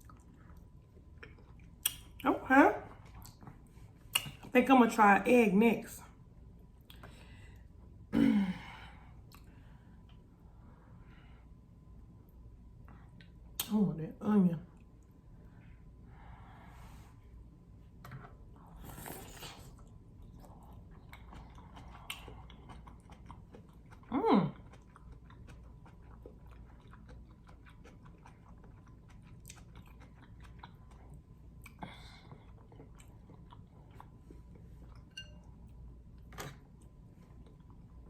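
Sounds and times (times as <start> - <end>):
chewing and mouth smacks: 0.0 - 2.2, 3.0 - 4.5, 18.8 - 35.1, 36.6 - 38.0.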